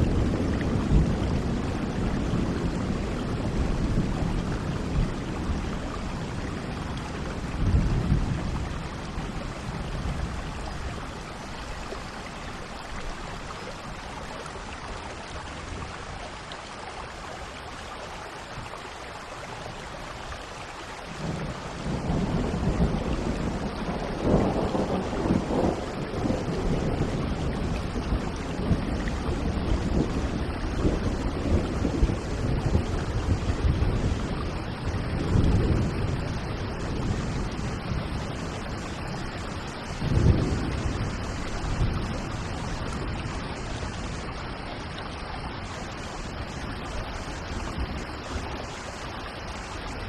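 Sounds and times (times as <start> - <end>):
rolling thunder: 0.0 - 10.6, 21.2 - 45.0
steady rain: 0.0 - 50.0.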